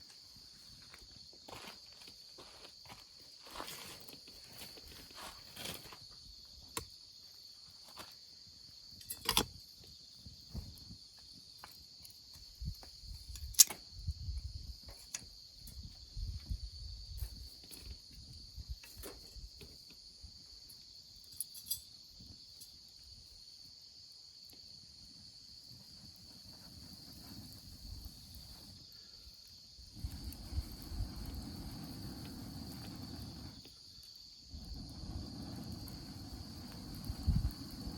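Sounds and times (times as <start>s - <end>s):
insects chirring: 0.0s - 37.9s
campfire crackling and popping: 25.7s - 37.9s.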